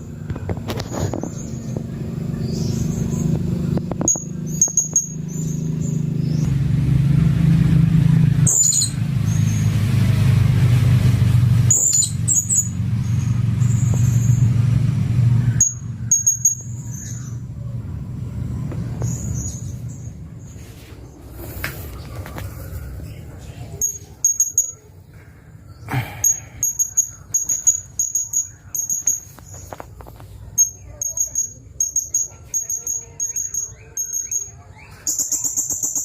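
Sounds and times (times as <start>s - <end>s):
loud steady low rumble: 0.0s - 24.2s
parrot chirping: 2.4s - 6.5s, 8.4s - 9.7s, 11.7s - 14.5s, 15.5s - 17.5s, 22.5s - 25.0s, 26.3s - 29.8s, 30.5s - 36.0s.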